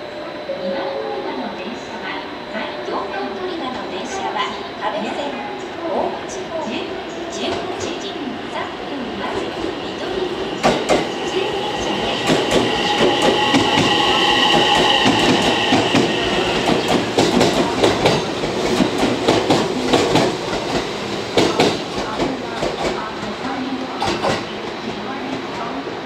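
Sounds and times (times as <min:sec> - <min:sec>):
steady high whine: 0:00.0 - 0:17.8
electric train running past: 0:00.0 - 0:26.0.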